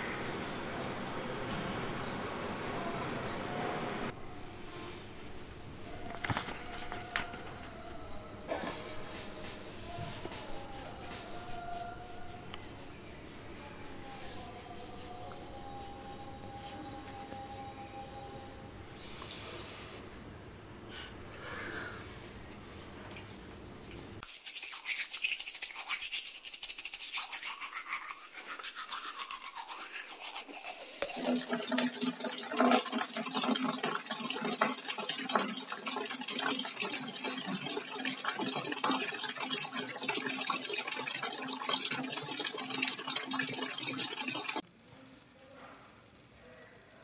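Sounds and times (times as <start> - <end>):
scrubbing strokes: 24.2 - 44.6
water running from a tap: 29.0 - 44.6.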